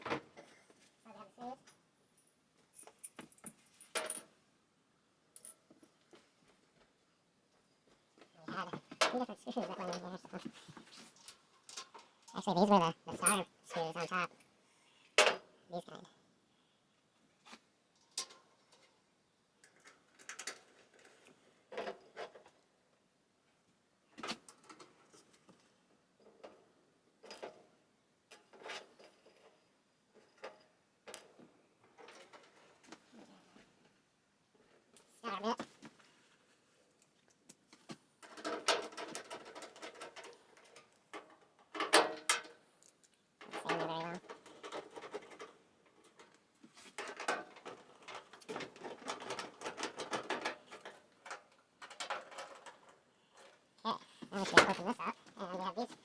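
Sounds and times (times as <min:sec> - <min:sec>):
screws and panel parts rattling: 0:38.2 - 0:42.5, 0:47.0 - 0:53.6.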